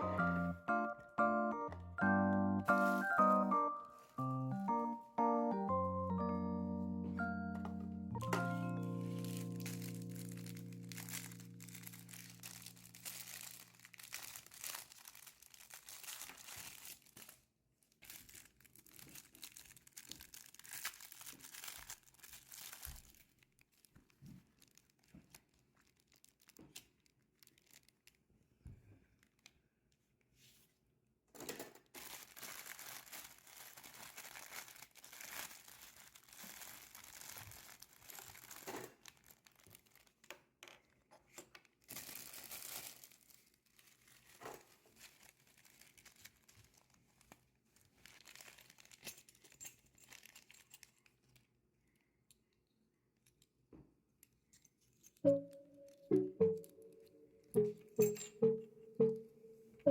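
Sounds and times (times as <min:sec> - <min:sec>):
plastic packaging crinkling and tearing: 0:08.4 - 0:28.3, 0:31.8 - 0:40.5, 0:41.4 - 0:51.4.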